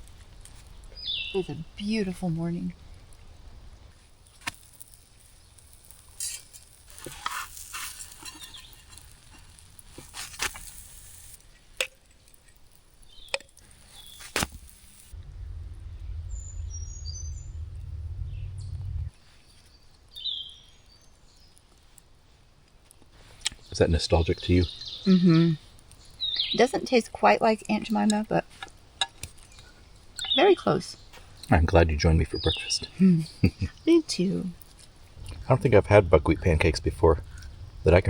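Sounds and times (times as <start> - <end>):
bird chirping: 0.8 - 2.2, 13.0 - 14.3, 15.1 - 21.6, 23.5 - 26.9, 29.4 - 34.5
low rumble: 15.0 - 19.2, 35.1 - 38.0.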